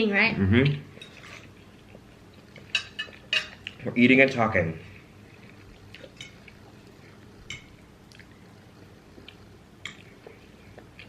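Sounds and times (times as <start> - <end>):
forks tapping on plates: 2.7 - 3.6, 7.4 - 7.7.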